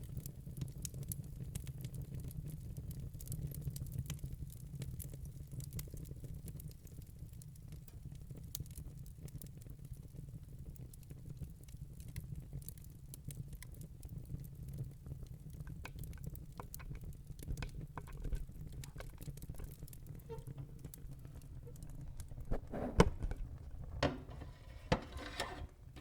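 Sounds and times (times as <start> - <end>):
logs crackling and popping: 12.0 - 24.8
low rumble of flames: 13.2 - 25.2.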